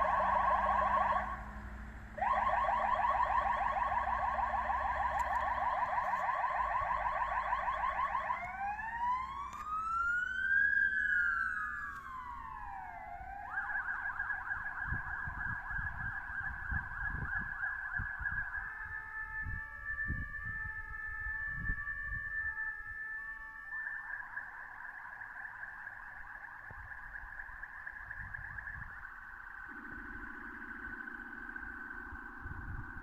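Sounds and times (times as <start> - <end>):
engine rumble: 0.0 - 17.4
fire engine siren: 0.0 - 33.0.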